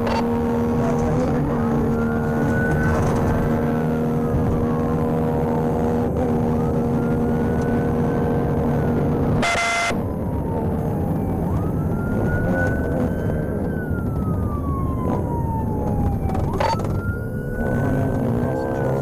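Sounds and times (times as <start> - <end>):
engine and road rumble: 0.0 - 19.0
police siren wailing: 0.0 - 19.0
short loud multi-pitch tone: 9.4 - 10.0.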